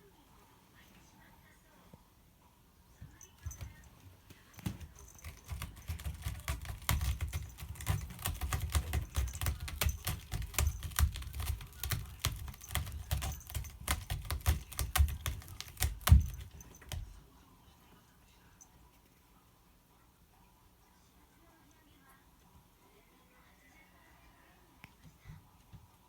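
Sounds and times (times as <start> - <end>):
cat scratching claws: 3.3 - 17.2.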